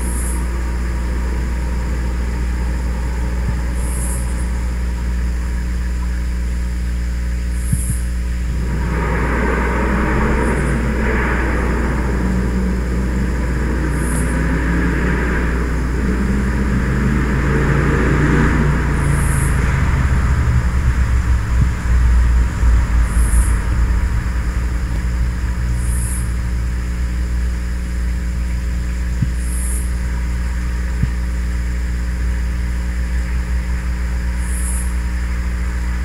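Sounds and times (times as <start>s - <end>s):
truck driving past: 8.1s - 29.2s.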